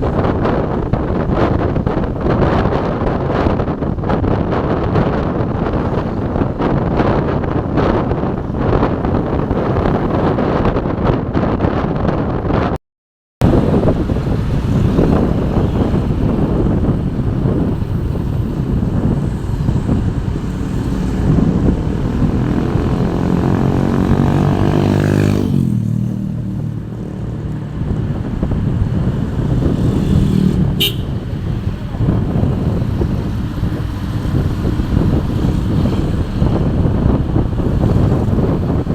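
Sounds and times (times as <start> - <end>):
road noise: 0.0 - 12.8, 13.4 - 38.9
vehicle engine revving: 18.6 - 38.9.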